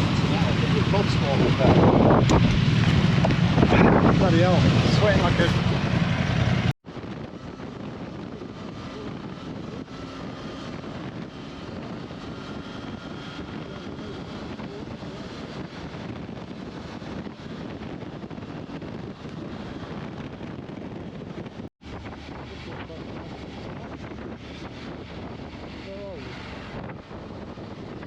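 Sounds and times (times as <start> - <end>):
motorcycle engine drone: 0.0 - 28.0
wind noise on microphone: 0.0 - 28.0.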